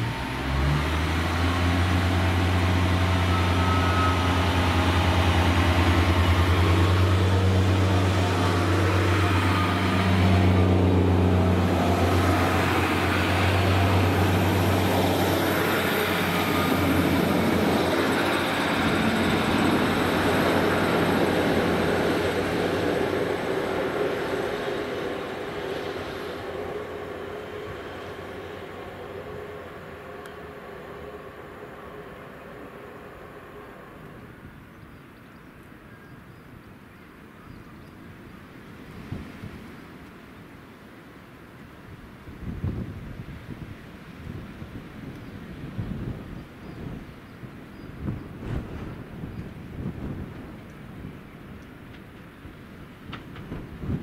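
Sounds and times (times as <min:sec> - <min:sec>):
diesel engine drone: 0:00.0 - 0:35.8
wheels rushing on rail: 0:00.0 - 0:54.0.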